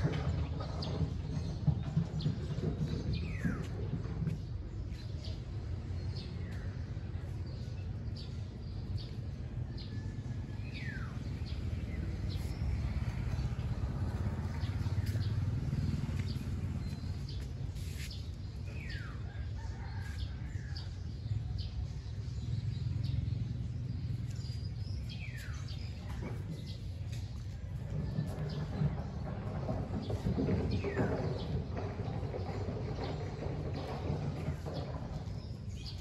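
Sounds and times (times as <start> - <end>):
birds chirping: 10.8 - 36.0.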